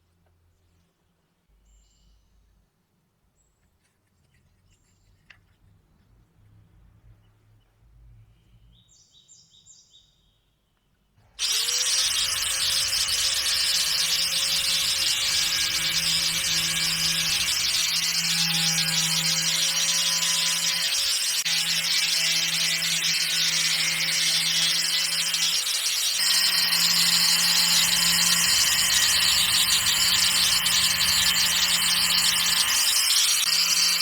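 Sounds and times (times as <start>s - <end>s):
electric power tool running: 11.4s - 34.0s
hissing of working material: 11.4s - 34.0s.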